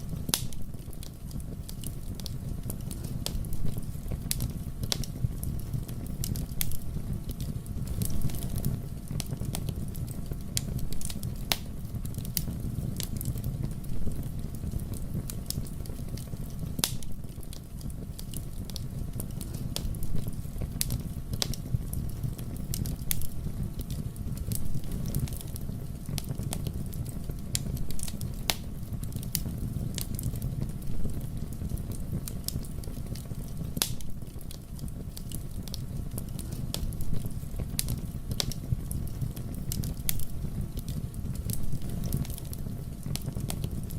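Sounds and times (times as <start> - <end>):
fire crackling and popping: 0.0 - 43.9
fire rumbling: 0.0 - 43.9.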